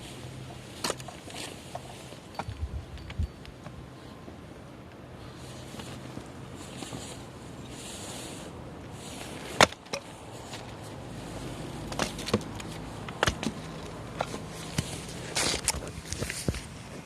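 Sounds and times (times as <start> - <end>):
firewood popping and snapping: 9.4 - 10.7, 11.9 - 16.7.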